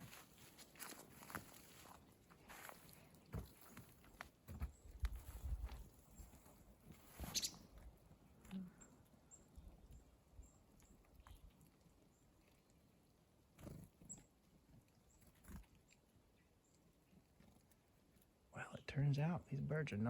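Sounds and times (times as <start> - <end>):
soft rustles: 0.0 - 7.8
faint high-pitched bird chips: 4.7 - 7.8, 13.6 - 14.3.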